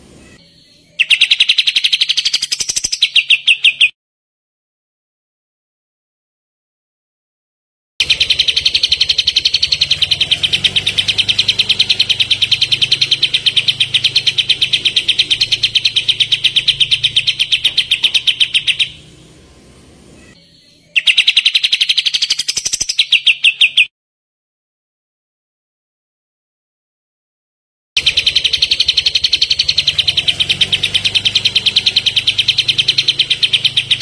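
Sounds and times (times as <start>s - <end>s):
songbird fast trill: 0.2s - 3.9s, 8.0s - 19.1s, 20.2s - 23.9s, 28.0s - 34.0s.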